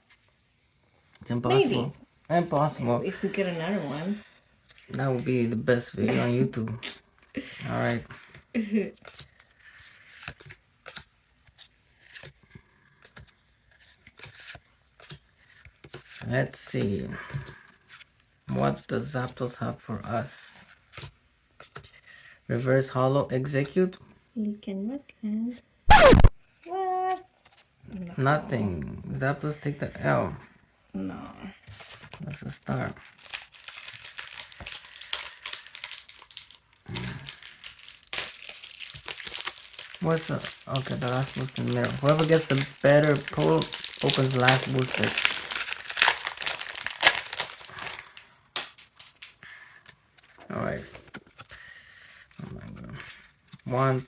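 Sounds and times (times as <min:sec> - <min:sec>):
foil pack crinkling: 0:31.8 - 0:51.7
short vocal sound: 0:36.9 - 0:37.3.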